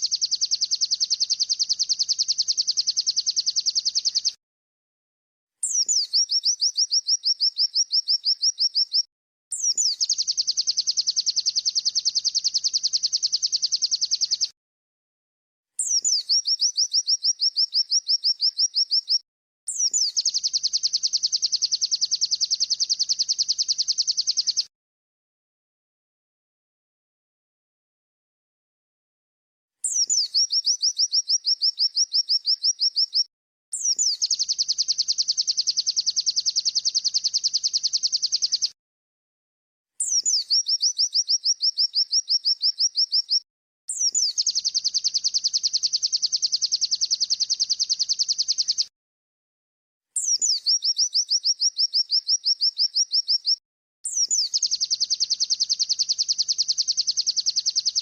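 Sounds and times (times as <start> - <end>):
bird chirps: 0.0 - 4.4, 5.6 - 14.6, 15.8 - 24.7, 29.8 - 38.8, 40.0 - 48.9, 50.1 - 58.0
fast buzzy bird trill: 6.0 - 14.5, 44.1 - 48.8.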